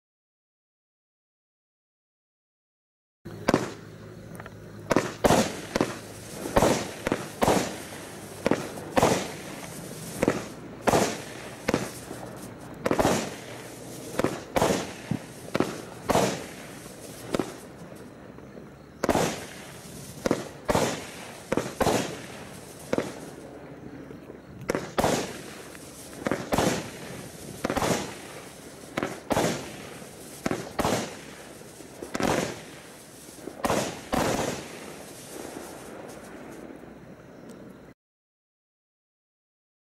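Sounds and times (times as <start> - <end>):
firework bangs: 3.4 - 3.9, 4.9 - 23.6, 24.5 - 36.8.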